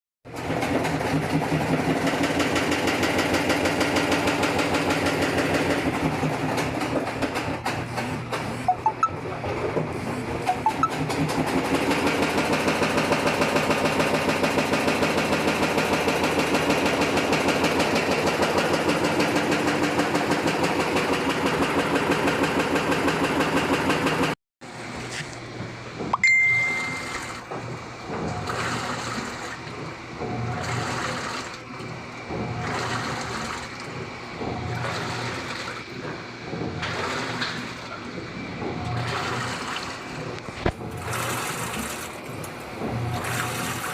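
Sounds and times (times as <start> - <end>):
washing machine drum rattling: 0.3 - 8.6, 9.4 - 24.4, 25.5 - 43.9
short high beep: 8.7 - 9.2, 10.5 - 11.0, 26.2 - 27.4.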